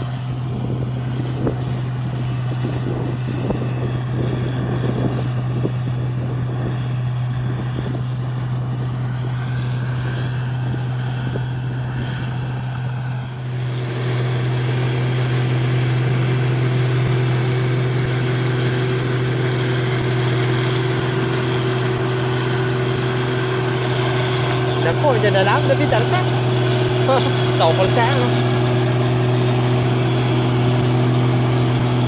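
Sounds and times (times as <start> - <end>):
combine harvester humming: 0.0 - 32.0
higher hum: 7.3 - 32.0.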